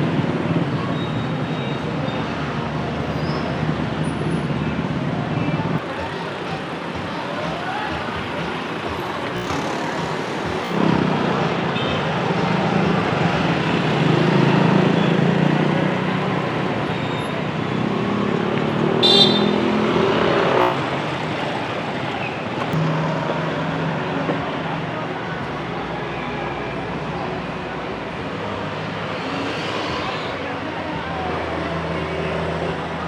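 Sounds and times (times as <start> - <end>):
motorcycles and cars passing: 8.7 - 24.7.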